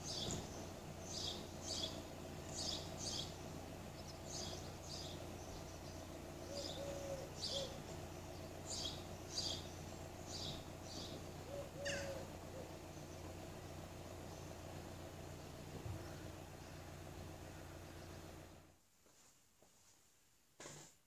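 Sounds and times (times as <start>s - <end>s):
bird chirping: 0.0s - 18.4s
low steady hum: 0.0s - 18.8s.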